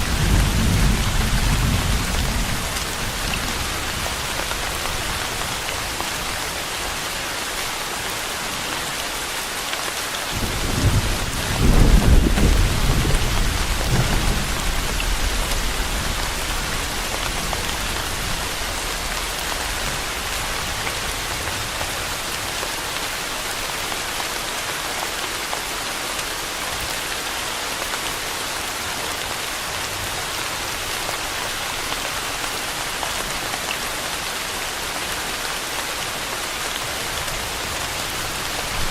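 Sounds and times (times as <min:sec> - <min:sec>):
thunder rumbling: 0:00.0 - 0:04.1, 0:10.4 - 0:20.6
steady rain falling: 0:00.0 - 0:38.9.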